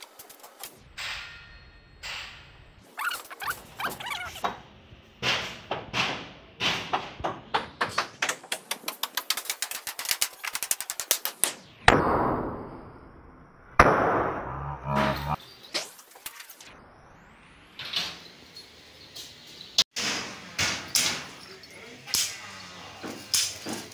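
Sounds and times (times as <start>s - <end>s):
hammer blows: 13.8s - 15.4s.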